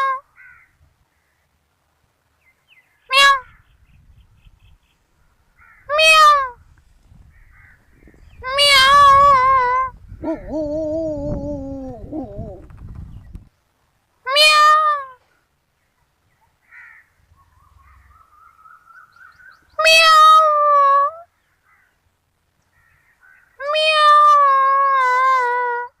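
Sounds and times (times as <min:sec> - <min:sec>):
kittens meowing: 0:08.4 - 0:12.7, 0:23.6 - 0:25.9.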